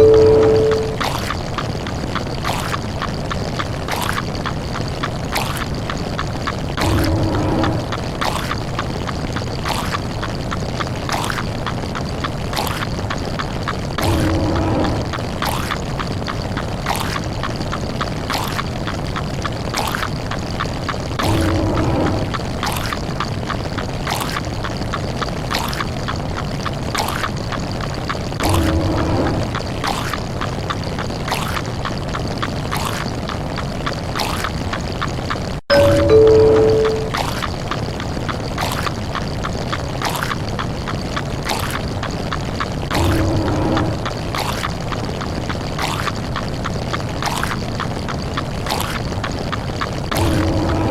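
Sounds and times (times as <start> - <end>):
noisy whoosh: 0.0 - 1.0, 28.4 - 30.0
two-note doorbell chime: 0.0 - 1.0, 35.7 - 37.2
low tone: 0.0 - 1.1, 35.7 - 37.3
pouring water effect: 0.0 - 50.9
rapid clicks and pops: 0.0 - 50.9
steady low rumble: 6.6 - 9.0, 13.8 - 16.2, 21.1 - 23.4, 28.4 - 30.6, 42.8 - 45.0, 50.0 - 50.9.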